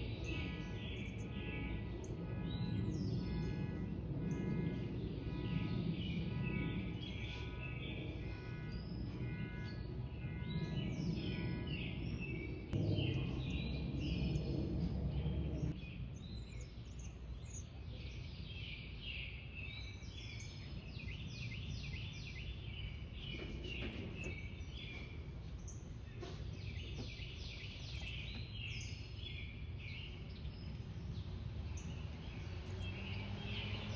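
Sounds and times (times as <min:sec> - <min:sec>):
low rumble: 0:00.0 - 0:16.4
songbirds chirping: 0:00.0 - 0:33.9.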